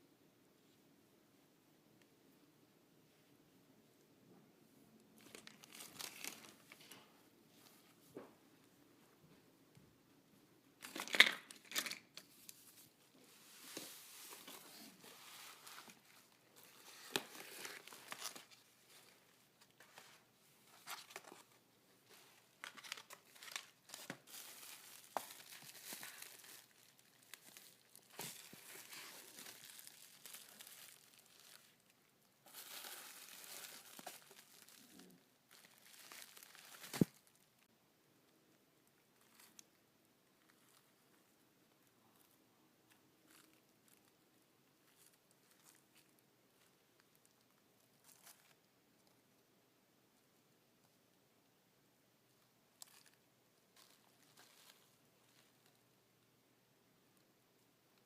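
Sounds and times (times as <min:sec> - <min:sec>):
packaging crinkling and tearing: 0:05.2 - 0:06.9, 0:15.8 - 0:19.1, 0:22.5 - 0:31.9, 0:32.5 - 0:37.4.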